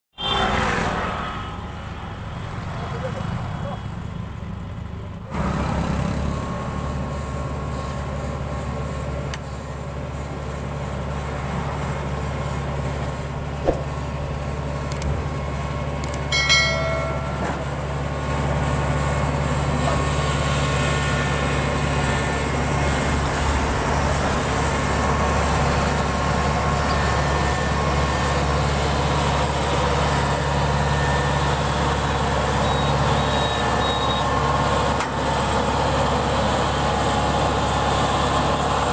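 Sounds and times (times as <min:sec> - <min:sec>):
combine harvester engine running: 0:04.3 - 0:38.9
brief high squeal: 0:32.6 - 0:34.3.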